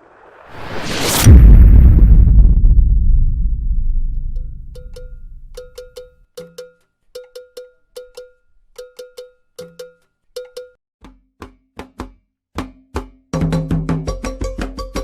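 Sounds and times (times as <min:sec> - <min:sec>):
deep drum strokes: 0:01.2 - 0:05.8
metal bell struck: 0:04.4 - 0:06.0.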